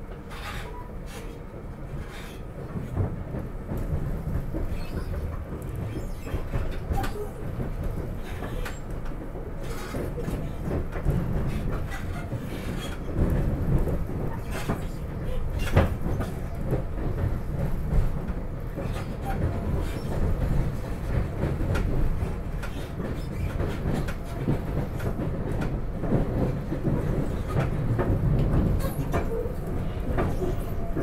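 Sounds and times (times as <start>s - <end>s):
train car rumbling on track: 0.0s - 31.0s.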